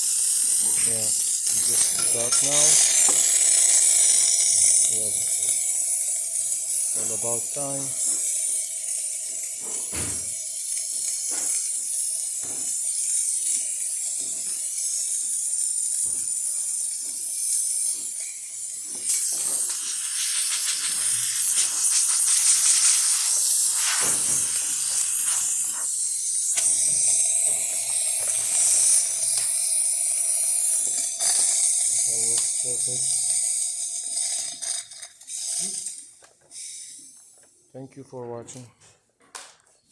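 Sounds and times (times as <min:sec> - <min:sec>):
steam wand hissing: 0:00.0 - 0:37.2.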